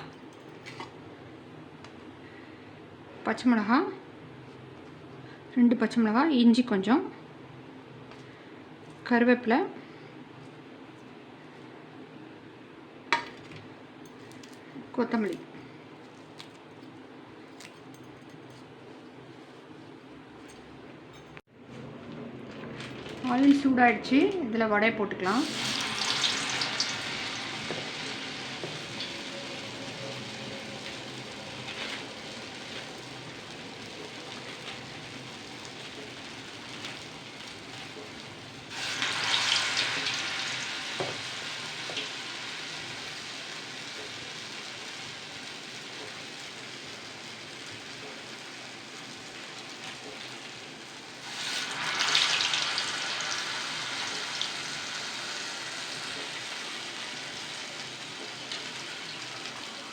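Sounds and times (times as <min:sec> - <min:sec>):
food sizzling in hot oil: 0:25.4 - 0:59.9.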